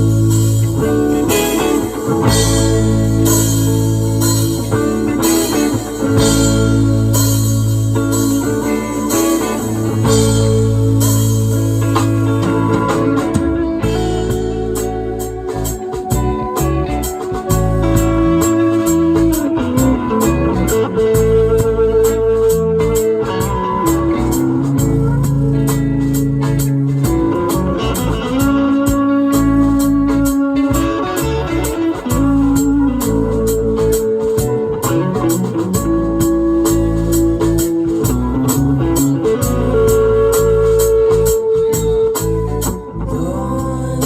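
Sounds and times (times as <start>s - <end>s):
lead guitar: 0.0s - 44.0s
live band playing instrumental: 0.0s - 44.0s.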